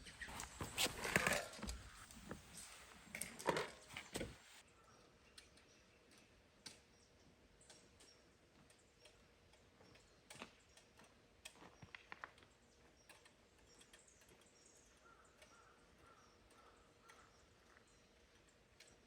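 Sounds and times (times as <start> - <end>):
faint clicks and ticks: 5.3 - 19.0.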